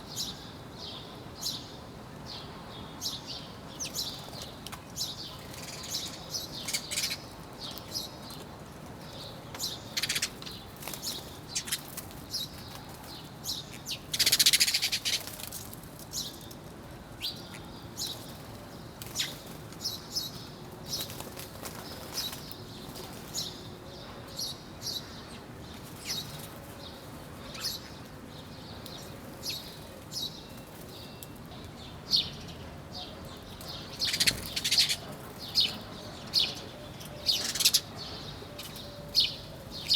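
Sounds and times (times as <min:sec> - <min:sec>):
small birds chirping: 0:00.1 - 0:39.9
harsh bird calls: 0:09.6 - 0:12.8, 0:33.0 - 0:39.9.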